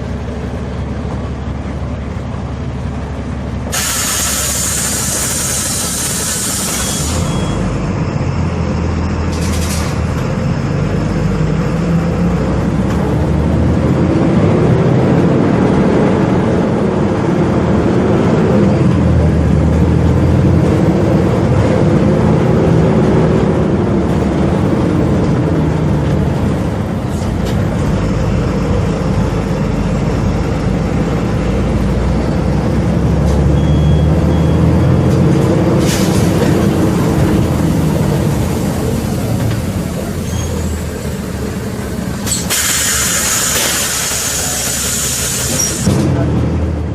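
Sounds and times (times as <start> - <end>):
bus engine running: 0.0 - 46.9
air brakes hissing: 3.7 - 7.6, 35.8 - 36.7, 37.3 - 46.0.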